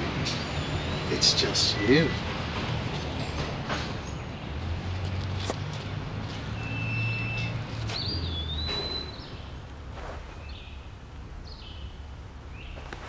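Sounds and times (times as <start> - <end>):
birds whistling: 6.6 - 13.0
low steady rumble: 9.4 - 13.0.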